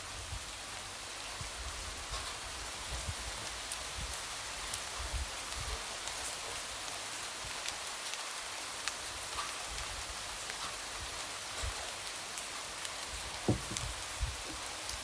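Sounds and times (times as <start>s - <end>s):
light rain pattering: 0.0s - 15.0s
single drops tapping: 13.5s - 13.9s.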